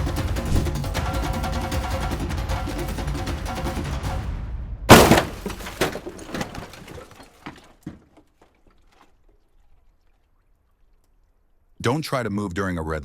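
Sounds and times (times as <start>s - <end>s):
background music: 0.0s - 5.4s
vehicle crash: 4.1s - 8.0s
breaking glass and debris clattering: 4.9s - 8.1s.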